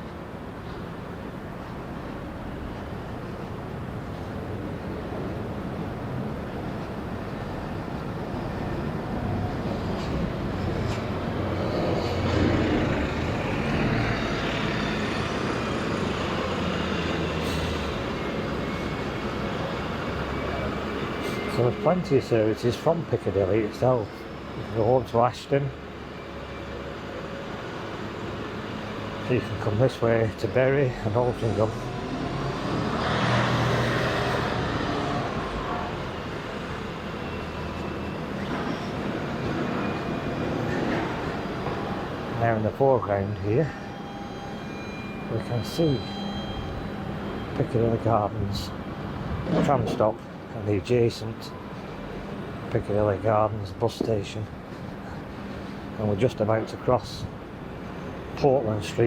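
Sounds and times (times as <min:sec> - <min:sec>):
road noise: 0:00.0 - 0:59.0
steady traffic hum: 0:00.0 - 0:59.0
vehicle passing close by: 0:31.7 - 0:36.8.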